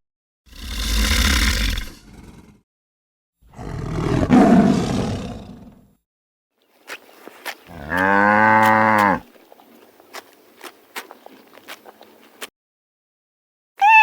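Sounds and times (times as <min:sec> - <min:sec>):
large animal roaring: 0:00.5 - 0:02.6, 0:03.4 - 0:05.9.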